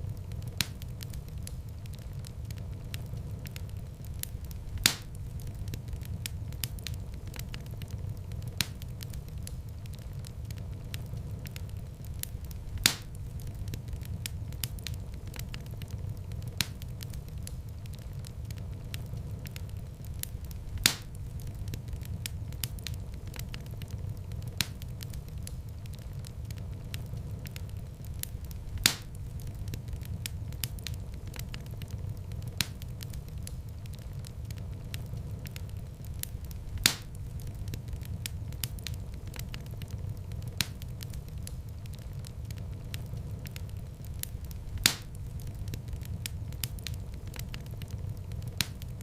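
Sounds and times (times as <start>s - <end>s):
low rumble of flames: 0.0s - 49.0s
wood fire crackling: 0.0s - 49.0s
loud fire pop: 4.8s - 5.2s, 12.8s - 13.2s, 20.8s - 21.2s, 28.8s - 29.2s, 36.8s - 37.2s, 44.8s - 45.2s.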